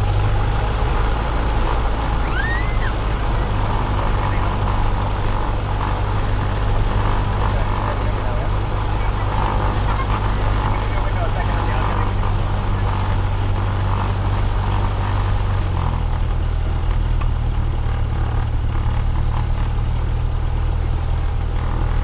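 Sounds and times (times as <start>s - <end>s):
propeller plane engine idling: 0.0s - 22.0s.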